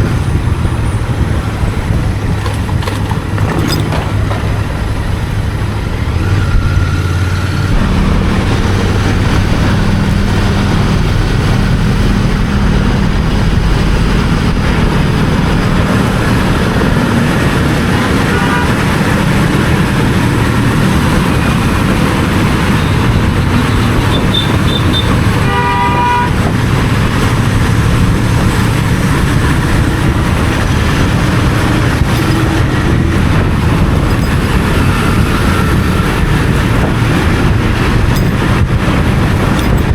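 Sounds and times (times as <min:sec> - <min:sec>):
motorcycle engine cruising: 0:00.0 - 0:25.4
vehicle horn honking: 0:24.3 - 0:26.4.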